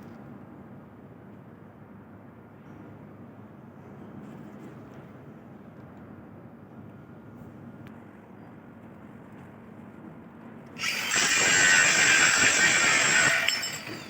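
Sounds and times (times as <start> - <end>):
angle grinder grinding metal: 10.8 - 14.0.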